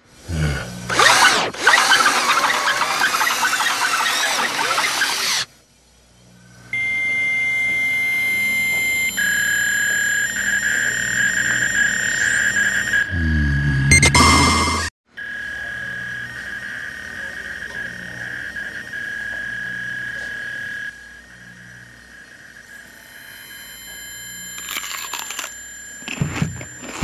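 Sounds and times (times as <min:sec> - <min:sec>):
hand drill grinding and squealing: 0:00.9 - 0:05.5, 0:17.7 - 0:27.0
steady high-pitched tone: 0:06.4 - 0:27.0.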